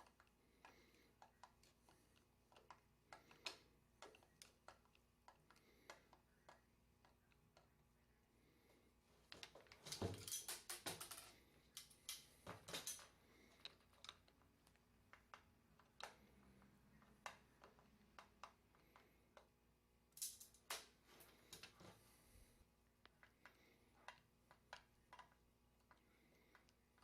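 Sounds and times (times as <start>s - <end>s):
metal parts and tools clicking: 9.6s - 14.4s, 20.1s - 20.9s.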